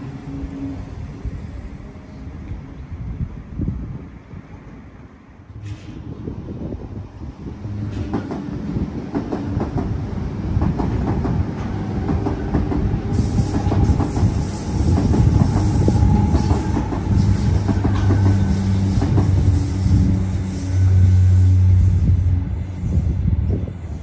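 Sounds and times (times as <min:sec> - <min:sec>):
train wheels clicking over rail joints: 0:07.6 - 0:20.5
rushing hiss: 0:12.8 - 0:24.0.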